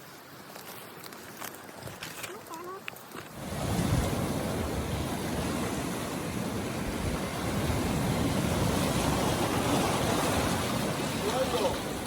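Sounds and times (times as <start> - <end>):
wind: 0.0 - 12.0
rough sea surf: 3.2 - 12.0.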